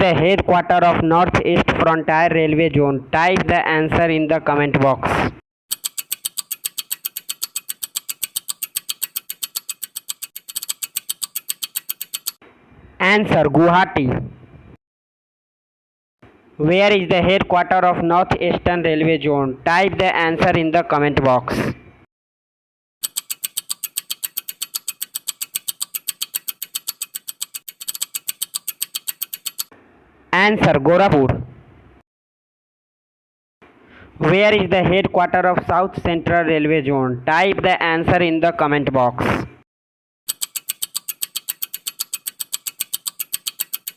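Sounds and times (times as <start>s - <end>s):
timer ticking: 5.7s - 12.4s, 23.0s - 29.7s, 40.3s - 43.9s.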